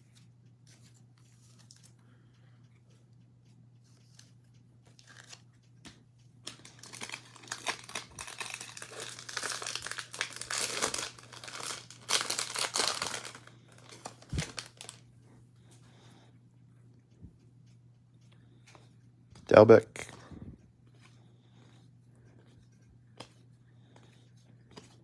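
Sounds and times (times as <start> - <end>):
low electrical hum: 0.0 - 25.0
foil wrapper crinkling: 5.0 - 5.4, 6.5 - 15.0.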